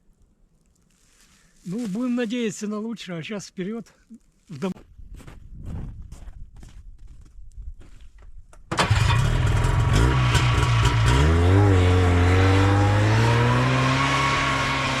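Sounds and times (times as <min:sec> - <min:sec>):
vehicle engine starting and running: 0:08.7 - 0:15.0.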